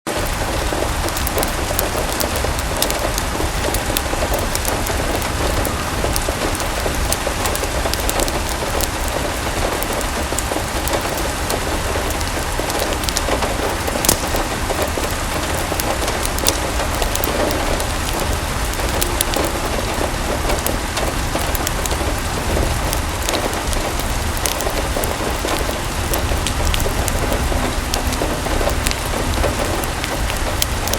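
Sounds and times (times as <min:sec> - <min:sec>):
sharp ticks of raindrops: 0:00.1 - 0:30.9
steady rain falling: 0:00.1 - 0:30.9
low rumble: 0:17.6 - 0:30.9.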